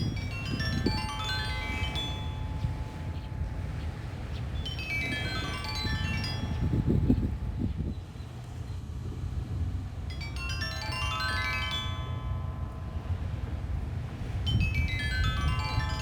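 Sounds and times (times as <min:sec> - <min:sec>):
stone xylophone runs: 0:00.0 - 0:03.7, 0:10.1 - 0:13.3
low rumble of wind: 0:00.0 - 0:16.0.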